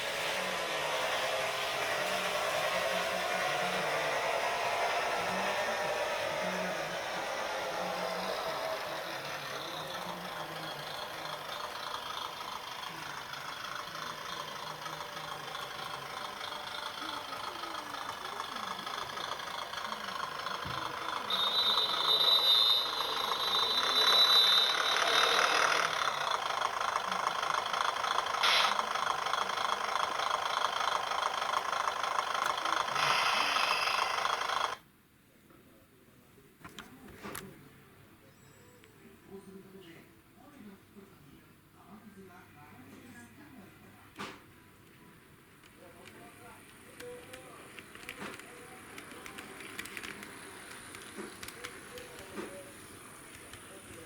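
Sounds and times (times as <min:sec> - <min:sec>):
high squeal: 0:00.0 - 0:11.6, 0:20.8 - 0:26.1
model train motor whining: 0:00.0 - 0:34.8, 0:45.6 - 0:54.0
wheel and rail noise: 0:00.0 - 0:34.8, 0:44.8 - 0:54.0.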